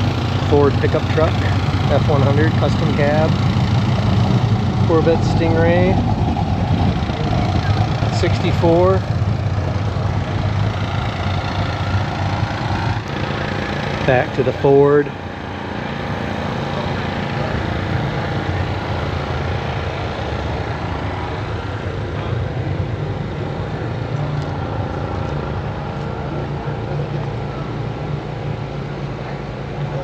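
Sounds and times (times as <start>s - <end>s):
outdoor noise: 0.0s - 30.0s
vehicle engine humming: 0.0s - 30.0s.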